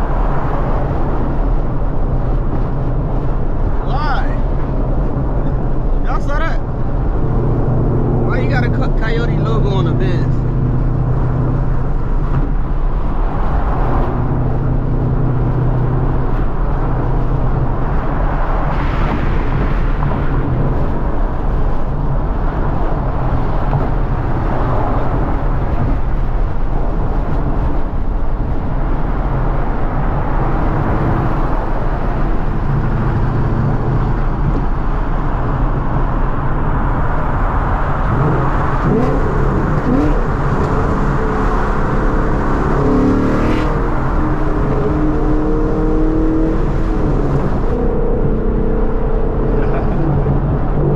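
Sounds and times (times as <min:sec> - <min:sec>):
car engine cruising: 0:00.0 - 0:50.9
tyre and road noise: 0:00.0 - 0:50.9.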